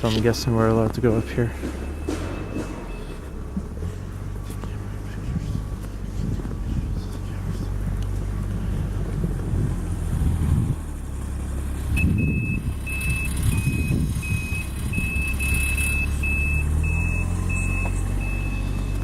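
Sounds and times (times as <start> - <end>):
backup alarm beeping: 0.0 - 5.8, 12.0 - 19.0
vehicle engine running: 0.0 - 19.0.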